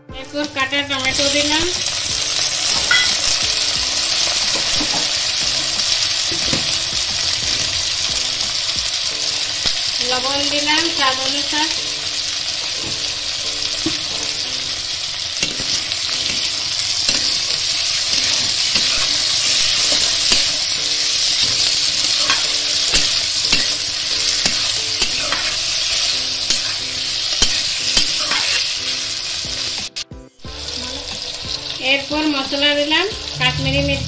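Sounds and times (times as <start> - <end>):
vegetables sizzling in oil: 0.2 - 34.0
spatula scraping and knocking pan: 2.0 - 8.6, 12.7 - 14.4, 15.3 - 28.7.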